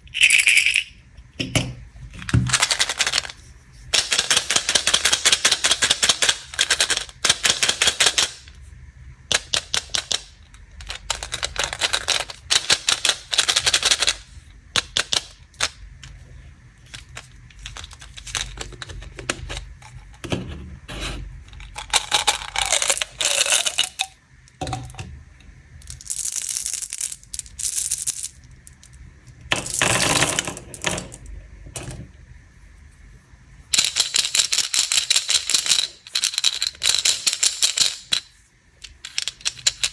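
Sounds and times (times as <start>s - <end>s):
packaging crackling and rattling: 10.8s - 14.2s, 16.9s - 20.1s, 21.5s - 24.9s.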